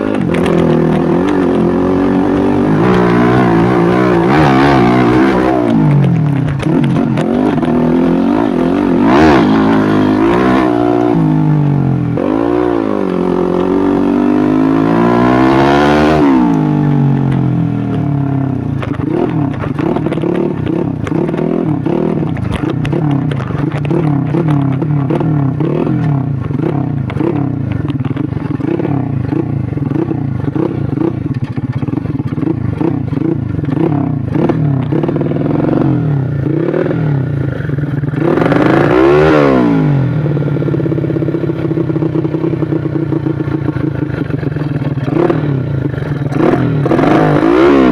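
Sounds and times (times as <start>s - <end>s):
motorcycle engine revving: 0.0s - 47.9s
rattling clatter: 17.3s - 35.2s.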